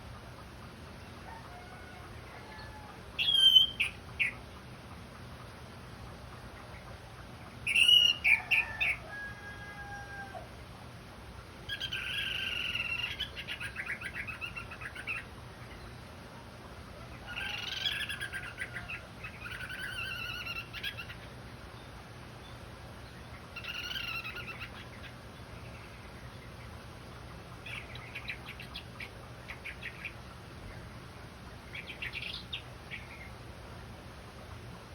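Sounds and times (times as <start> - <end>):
thrush singing chirps and whistles: 3.2 - 4.4, 7.7 - 9.0.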